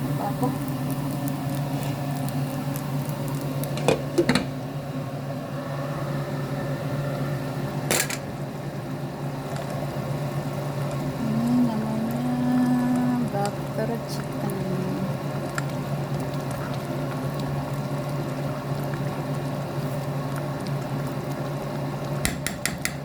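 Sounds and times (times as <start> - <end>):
appliance motor hum: 0.0 - 23.0
sharp knocks: 22.2 - 23.0.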